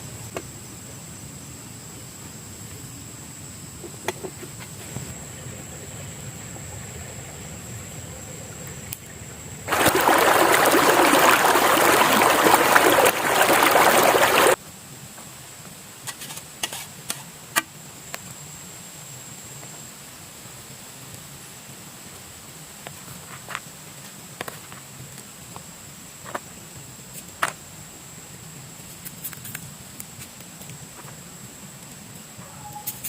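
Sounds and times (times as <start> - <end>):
insects chirring: 0.0 - 14.7
water pouring: 9.7 - 14.6.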